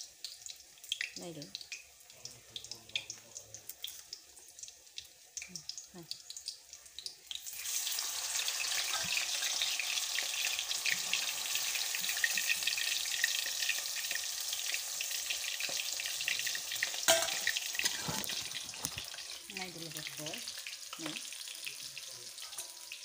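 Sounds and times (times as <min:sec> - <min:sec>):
food sizzling in hot oil: 0:00.0 - 0:23.0
metal spatula stirring: 0:17.1 - 0:19.0.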